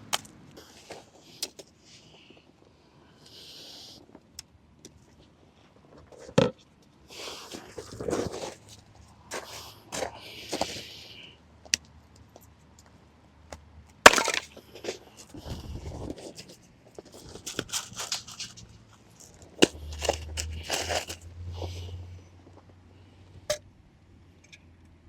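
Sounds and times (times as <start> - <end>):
firewood cracking: 14.0 - 14.7
wood crackling and rustling: 14.0 - 21.3.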